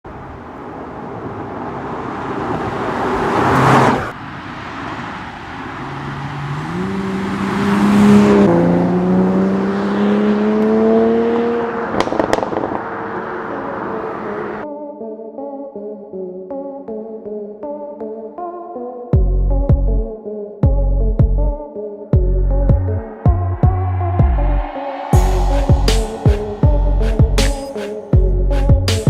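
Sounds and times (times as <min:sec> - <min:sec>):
car engine accelerating: 0:00.1 - 0:14.6, 0:22.2 - 0:29.0
car passing by: 0:00.1 - 0:14.6, 0:23.2 - 0:28.2.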